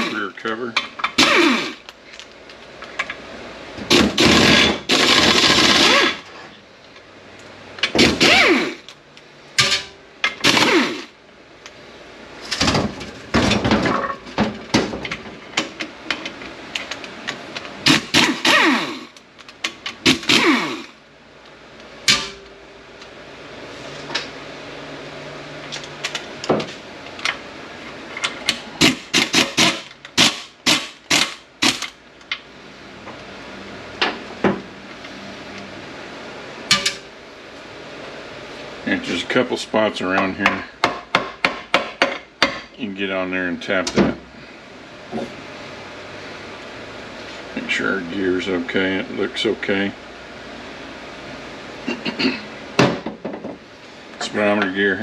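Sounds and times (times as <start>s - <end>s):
power wrench whirring: 0.0s - 0.2s, 1.1s - 1.8s, 3.9s - 6.3s, 8.0s - 8.9s, 10.4s - 11.1s, 17.8s - 19.2s, 20.0s - 21.0s, 28.8s - 31.9s.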